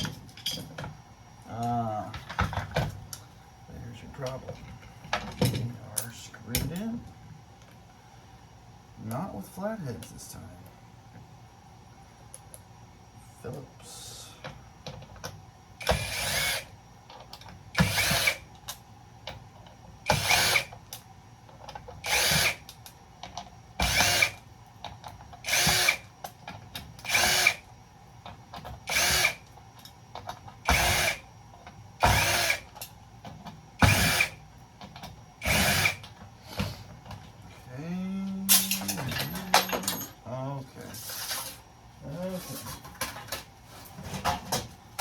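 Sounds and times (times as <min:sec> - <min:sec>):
cordless drill bursts: 0:15.8 - 0:16.7, 0:17.8 - 0:18.4, 0:20.1 - 0:20.7, 0:22.0 - 0:22.7, 0:23.8 - 0:24.4, 0:25.4 - 0:26.0, 0:27.0 - 0:27.6, 0:28.8 - 0:29.4, 0:30.6 - 0:31.2, 0:32.0 - 0:32.7, 0:33.8 - 0:34.4, 0:35.4 - 0:36.0.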